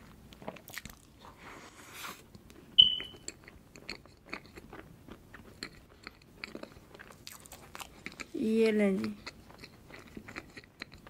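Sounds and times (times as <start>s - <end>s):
chewing mouth sounds: 0.3s - 1.2s, 2.3s - 8.4s, 9.0s - 11.0s
sharp clink with ring: 2.8s - 3.2s.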